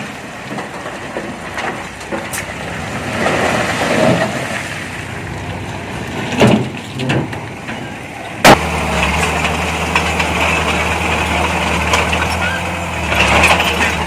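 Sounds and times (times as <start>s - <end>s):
diesel machinery running: 0.0s - 14.0s
sharp crack: 8.4s - 14.0s.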